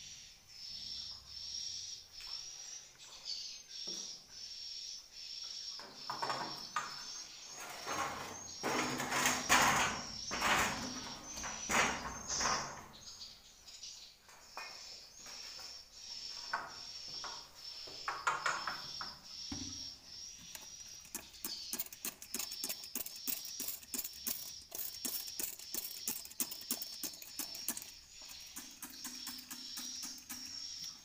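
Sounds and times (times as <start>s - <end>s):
high bird chirp: 0.1s - 31.0s
scraping and knocking: 7.5s - 13.0s
rapid clicking: 20.5s - 31.0s.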